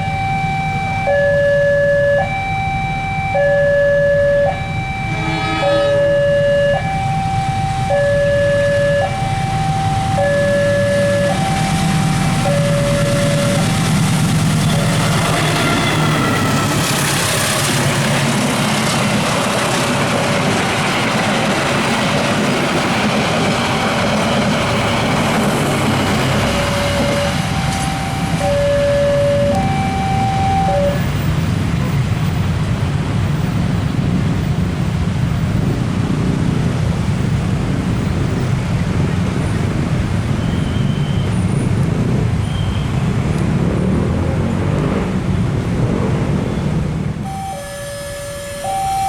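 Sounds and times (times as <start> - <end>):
two-tone electronic warning alarm: 0.0 - 17.5, 23.0 - 31.3, 47.2 - 49.0
train wheels on rails: 9.1 - 48.9.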